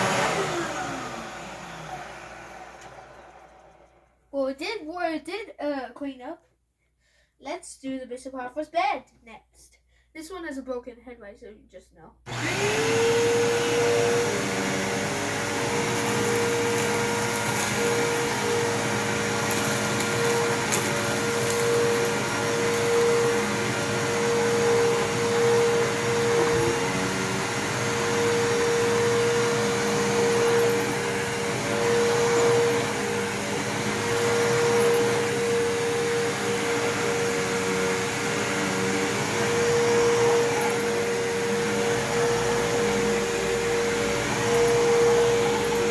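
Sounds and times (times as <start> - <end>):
vacuum cleaner running: 0.0 - 4.2, 12.3 - 45.9.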